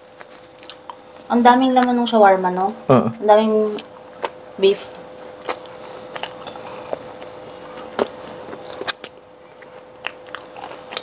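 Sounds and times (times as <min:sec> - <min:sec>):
faint steady hum: 0:00.0 - 0:11.0
wet chewing smacks: 0:05.0 - 0:11.0.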